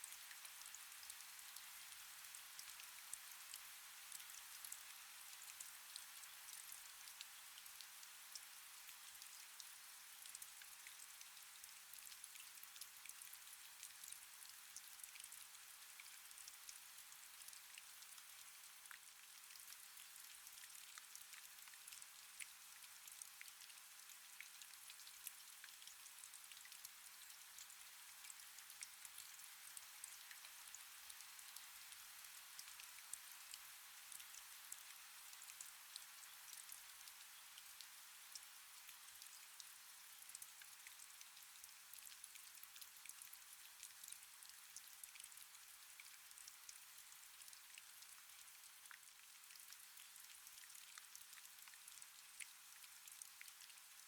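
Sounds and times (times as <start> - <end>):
steady rain hiss: 0.0 - 11.8, 26.2 - 44.9.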